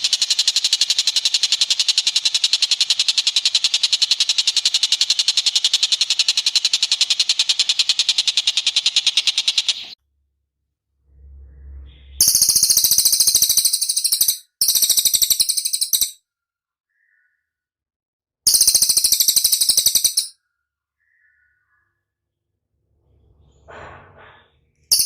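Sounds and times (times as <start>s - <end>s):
faint low rumble: 10.0s - 12.5s
bird fast high trill: 11.2s - 16.2s, 18.5s - 20.4s.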